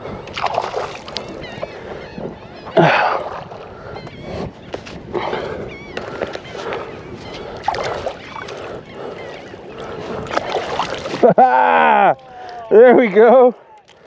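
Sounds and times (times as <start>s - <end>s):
water splashing around a kayak: 0.0s - 14.0s
small birds chirping: 3.7s - 10.9s.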